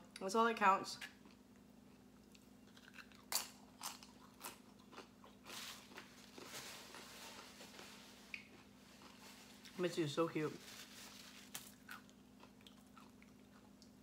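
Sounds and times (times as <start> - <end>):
chip crunching and chewing: 1.0 - 9.8, 11.4 - 14.0
paper napkin rustling: 5.5 - 11.8.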